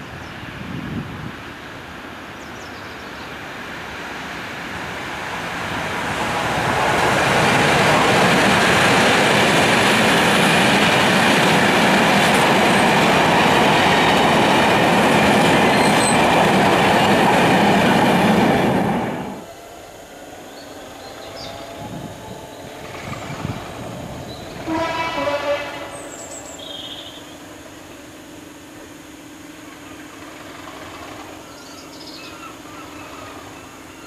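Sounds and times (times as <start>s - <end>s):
diesel locomotive passing: 0.0s - 34.0s
steel wheels on rail: 3.6s - 34.0s
faint high wheel squeals: 19.6s - 27.4s.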